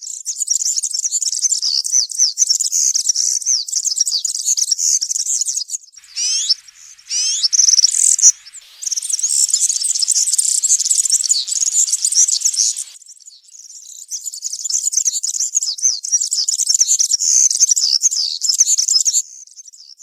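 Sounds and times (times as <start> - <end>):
short rising bird trills: 6.0 - 13.0
bird singing jingling song: 6.0 - 14.7.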